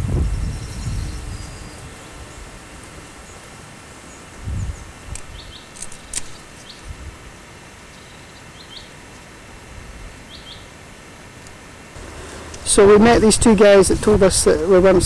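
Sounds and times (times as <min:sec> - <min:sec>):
small birds chirping: 0:00.0 - 0:06.9, 0:07.8 - 0:09.0, 0:10.3 - 0:10.8
outdoor hiss: 0:00.0 - 0:15.0
sharp clicks: 0:05.1 - 0:06.5.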